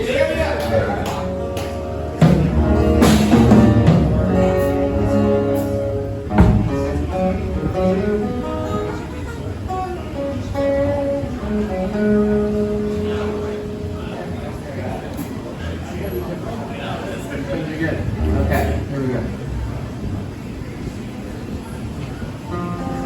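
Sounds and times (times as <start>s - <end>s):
guitar chords strummed: 0.6s - 15.4s, 18.0s - 19.6s.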